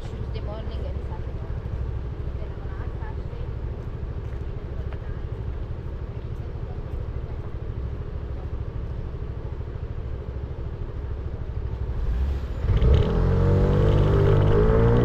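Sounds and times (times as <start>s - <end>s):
motorcycle engine revving: 11.8s - 15.0s.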